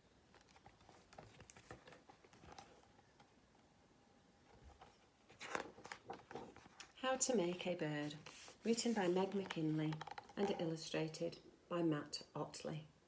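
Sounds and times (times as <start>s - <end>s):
picture book rustling: 0.2s - 3.4s, 4.4s - 10.9s.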